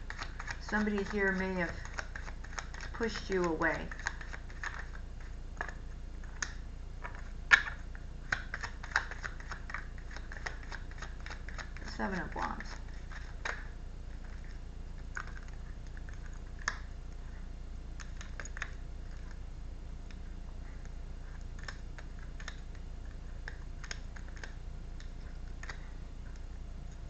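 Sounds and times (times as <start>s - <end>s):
cards clicking and tapping: 0.0s - 5.0s, 5.6s - 13.7s
steady low hum: 0.0s - 27.0s.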